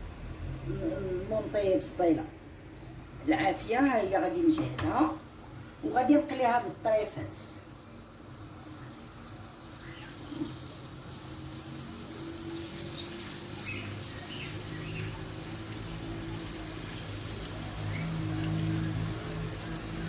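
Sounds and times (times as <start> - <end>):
low steady hum: 0.0 - 20.0
oil sizzling in a frying pan: 4.6 - 20.0.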